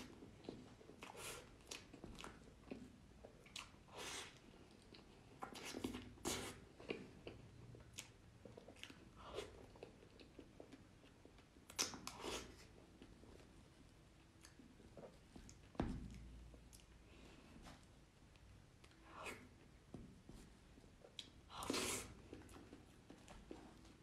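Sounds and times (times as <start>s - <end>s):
wet chewing mouth noises: 0.0s - 12.8s.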